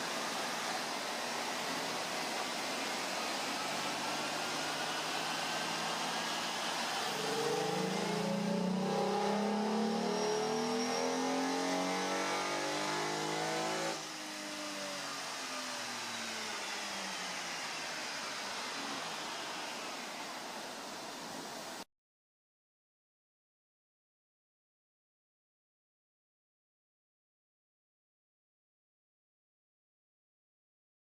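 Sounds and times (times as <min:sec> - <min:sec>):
car engine revving under load: 0:00.0 - 0:15.4
fan noise rushing: 0:00.0 - 0:21.8.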